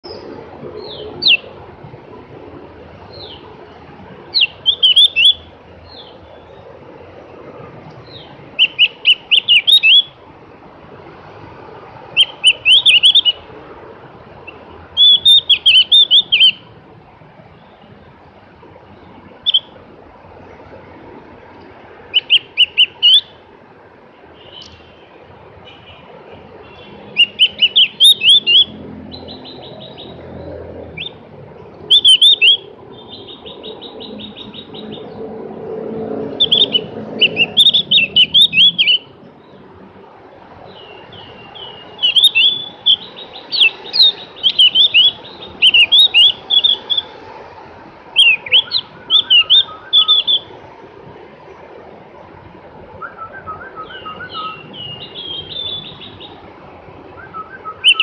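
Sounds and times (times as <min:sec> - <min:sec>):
bird singing swooping chirps and trills: 0:00.0 - 0:01.8, 0:02.9 - 0:06.8, 0:08.0 - 0:10.2, 0:12.0 - 0:13.5, 0:14.4 - 0:16.8, 0:22.0 - 0:23.4, 0:26.6 - 0:39.8, 0:40.6 - 0:47.4, 0:48.1 - 0:50.6, 0:53.0 - 0:56.5, 0:57.1 - 0:58.0.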